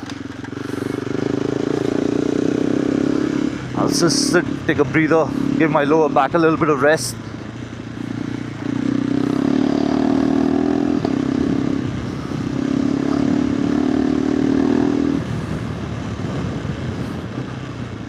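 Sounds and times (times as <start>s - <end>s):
motorcycle engine idling: 0.0s - 9.6s.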